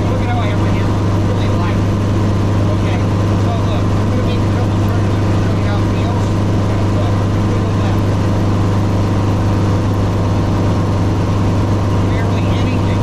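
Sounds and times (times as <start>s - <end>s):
helicopter drone: 0.0s - 13.0s.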